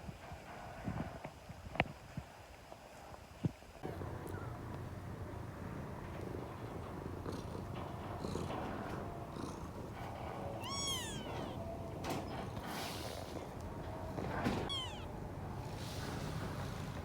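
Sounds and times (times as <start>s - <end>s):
cat purring: 3.8s - 17.0s
kitten meowing: 10.6s - 11.7s, 14.7s - 15.1s.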